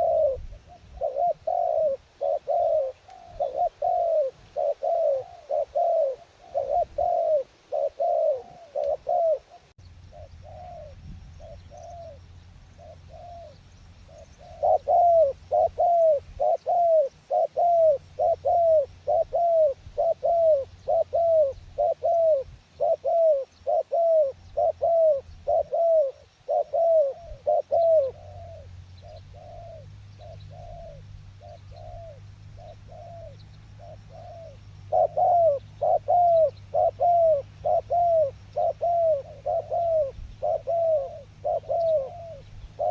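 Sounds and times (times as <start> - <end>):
dove cooing: 0.0 - 42.9
low steady rumble: 9.4 - 22.9.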